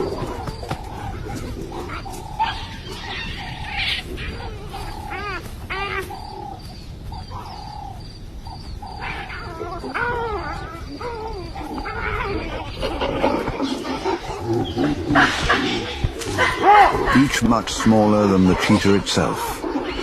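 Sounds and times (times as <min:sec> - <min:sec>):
baboons calling: 0:00.0 - 0:20.0
baboon arching cries: 0:01.1 - 0:06.7, 0:08.8 - 0:18.8.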